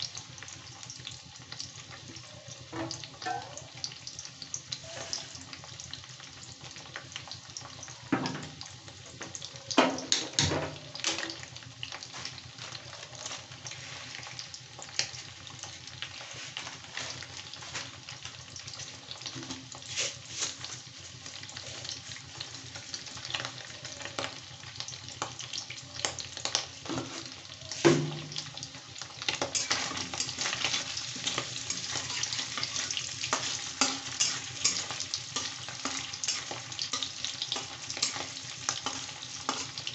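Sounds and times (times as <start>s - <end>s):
food sizzling in hot oil: 0.0s - 39.9s
spatula stirring in wok: 28.5s - 39.9s.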